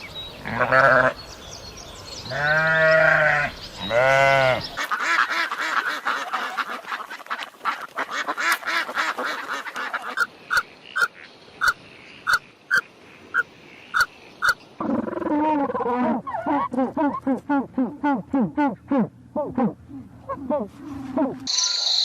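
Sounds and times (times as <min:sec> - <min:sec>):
long bleats: 0:00.4 - 0:01.2, 0:02.3 - 0:04.8
ducks quacking: 0:02.3 - 0:15.0.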